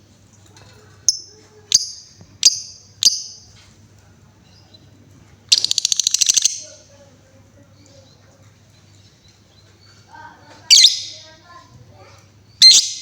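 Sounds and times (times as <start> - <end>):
lovebird chattering trill: 1.1 - 3.5, 5.5 - 6.8, 10.7 - 11.4, 12.6 - 13.0
lovebird chirping: 1.1 - 3.5, 4.4 - 6.8, 10.7 - 11.4, 12.5 - 13.0.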